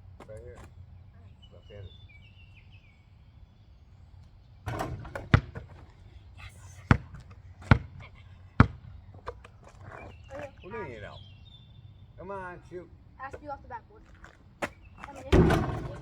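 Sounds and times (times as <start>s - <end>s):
basketball bouncing on hard ground: 4.6s - 6.1s, 6.9s - 10.6s, 13.3s - 16.0s.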